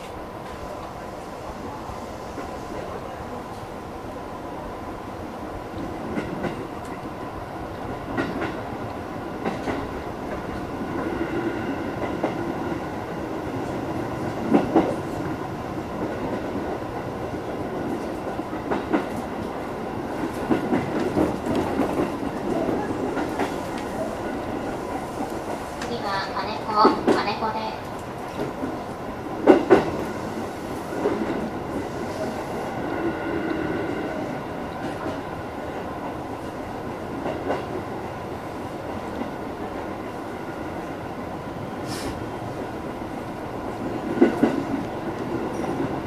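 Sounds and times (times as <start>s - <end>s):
electric train rumbling: 0.0s - 46.0s.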